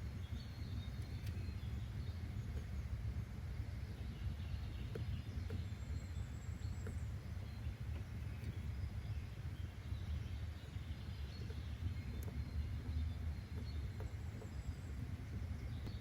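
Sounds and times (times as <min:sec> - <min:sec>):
faint bird chirps: 0:00.0 - 0:16.0
small clicks: 0:01.0 - 0:01.5, 0:11.3 - 0:16.0.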